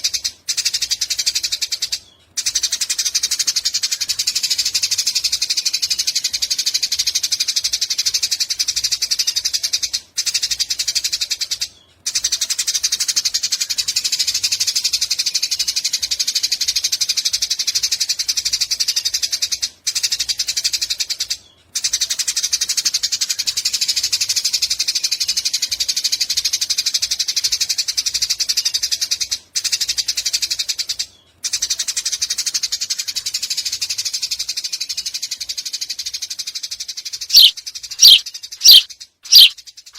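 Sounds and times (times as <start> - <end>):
sparrow chattering rattle: 36.6 - 39.6.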